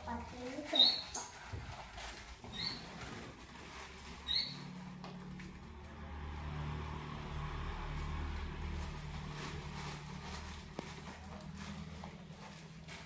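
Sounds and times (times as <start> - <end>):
small bird squeaky chirps: 0.7 - 1.4, 2.5 - 3.0, 4.2 - 4.8
vehicle engine hum: 1.8 - 13.0.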